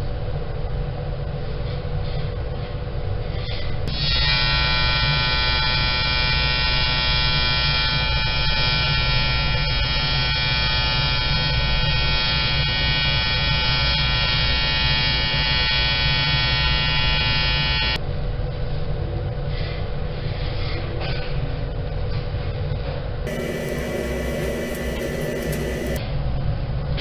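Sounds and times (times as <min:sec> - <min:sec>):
low steady rumble: 0:23.3 - 0:26.0
welding arc buzz: 0:23.3 - 0:26.0.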